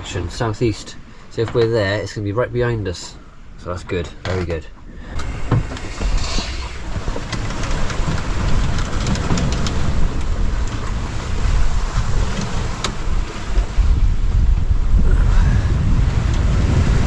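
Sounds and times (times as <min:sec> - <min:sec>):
sea rushing: 0:00.0 - 0:17.0
wind rumbling on microphone: 0:04.8 - 0:17.0.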